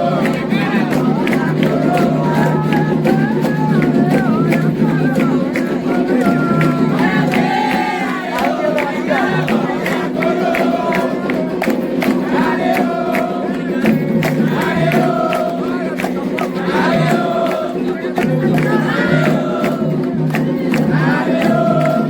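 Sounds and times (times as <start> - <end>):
group singing a chant: 0.0 - 22.0
hand drumming: 0.0 - 22.0.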